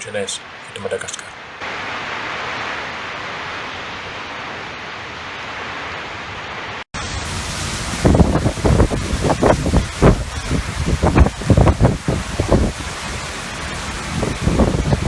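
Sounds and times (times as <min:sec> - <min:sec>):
storm rushing noise: 0:01.6 - 0:15.0
wind gusts buffeting microphone: 0:07.3 - 0:15.0.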